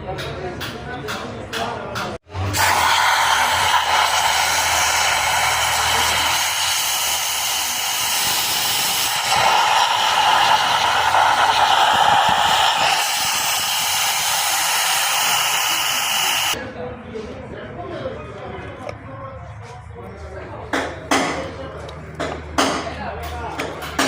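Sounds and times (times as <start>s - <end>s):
pressurized air hissing: 2.5s - 16.6s.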